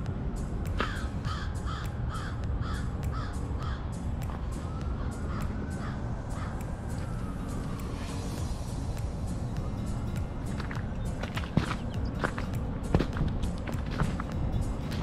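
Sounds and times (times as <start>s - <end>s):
steady low rumble: 0.0s - 15.0s
bird calling: 0.8s - 4.0s.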